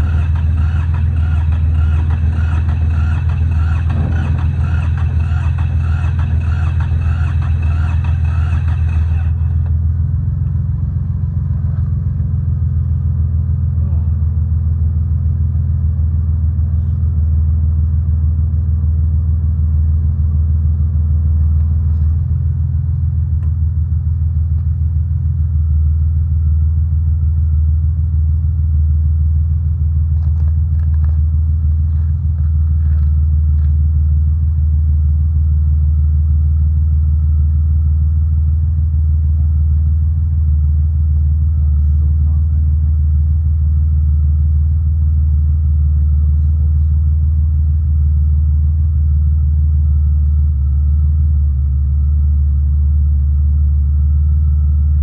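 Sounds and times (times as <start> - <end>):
small diesel engine running: 0.0 - 55.0.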